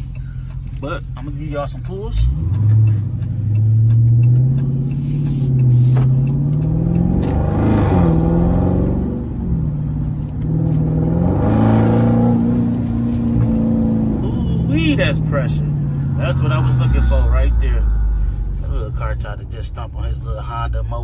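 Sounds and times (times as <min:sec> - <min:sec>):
car engine accelerating hard: 0:00.0 - 0:21.0.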